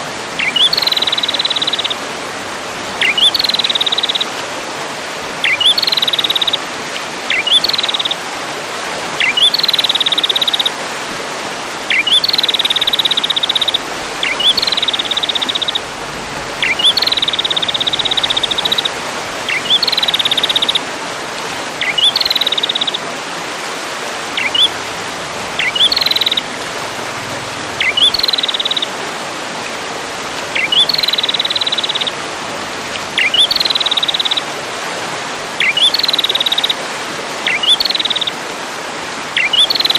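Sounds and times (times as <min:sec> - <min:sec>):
songbird call with buzzy trill: 0:00.4 - 0:02.0, 0:03.0 - 0:04.3, 0:05.4 - 0:06.6, 0:07.3 - 0:08.2, 0:09.2 - 0:10.7, 0:11.9 - 0:16.0, 0:16.6 - 0:20.8, 0:21.8 - 0:23.0, 0:24.4 - 0:24.8, 0:25.6 - 0:26.5, 0:27.8 - 0:28.9, 0:30.6 - 0:32.2, 0:33.2 - 0:34.5, 0:35.6 - 0:36.8, 0:37.4 - 0:38.4, 0:39.4 - 0:39.9.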